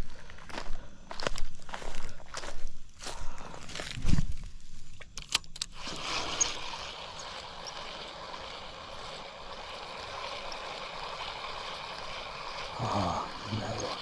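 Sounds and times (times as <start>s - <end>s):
stream water flowing: 5.8s - 14.0s.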